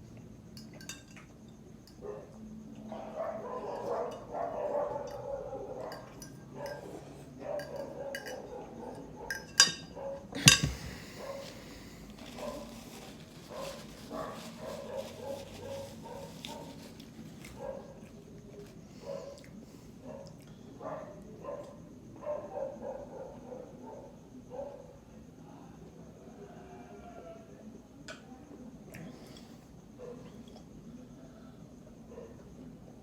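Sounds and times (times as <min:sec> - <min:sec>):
cutlery clinking against dish: 0:00.6 - 0:01.3, 0:07.6 - 0:08.5, 0:09.3 - 0:11.0.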